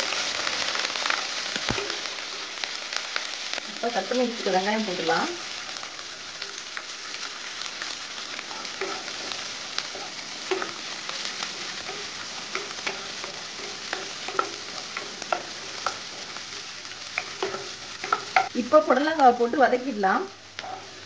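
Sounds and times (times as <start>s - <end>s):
onions sizzling in hot oil: 0.0s - 21.0s
wooden spatula clicks and scrapes: 7.8s - 18.6s, 20.5s - 21.0s.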